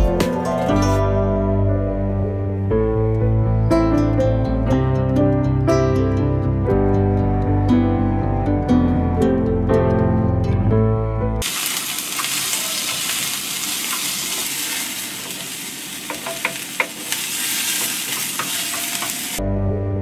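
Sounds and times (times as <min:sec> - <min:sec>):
soft plucked-string music: 0:00.0 - 0:10.8
onions sizzling in a frying pan: 0:11.4 - 0:19.4
spatula clicking against pan: 0:16.1 - 0:17.2.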